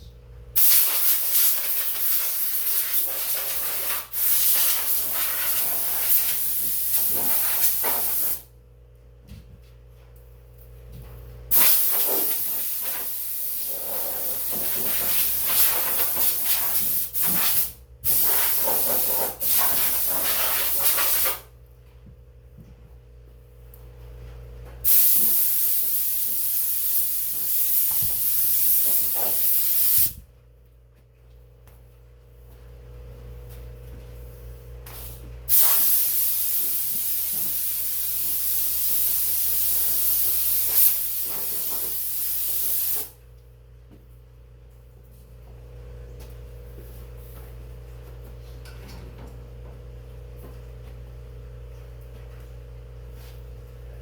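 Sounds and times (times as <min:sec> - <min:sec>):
compressed air blow gun hissing: 0:35.5 - 0:43.1.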